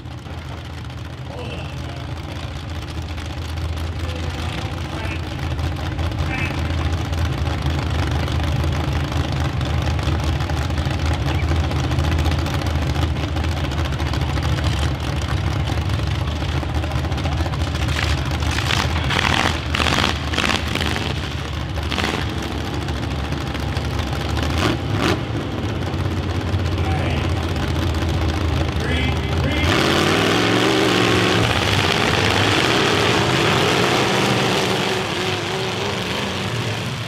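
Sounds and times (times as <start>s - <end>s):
car engines idling: 0.0s - 37.0s
loud engine bursts: 17.0s - 37.0s.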